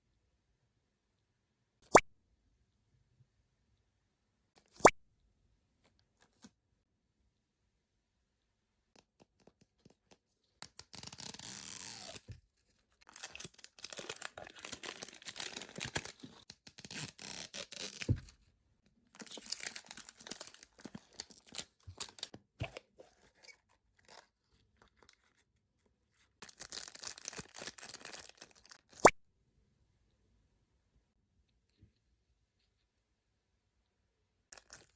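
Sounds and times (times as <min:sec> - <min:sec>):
plastic packaging tearing and crinkling: 0:10.6 - 0:12.3, 0:13.0 - 0:18.3, 0:19.1 - 0:25.4, 0:26.4 - 0:28.9.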